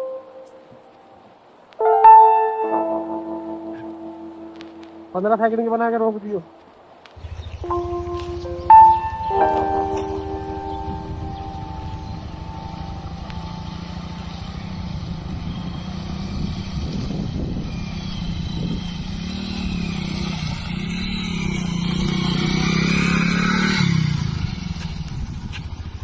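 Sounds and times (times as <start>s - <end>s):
motorcycle engine running: 7.2s - 26.0s.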